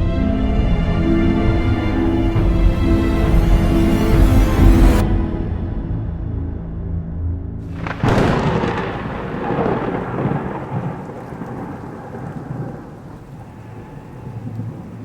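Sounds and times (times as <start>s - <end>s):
low steady musical drone: 0.0s - 9.8s
thunderclap with rolling rumble: 7.7s - 15.0s.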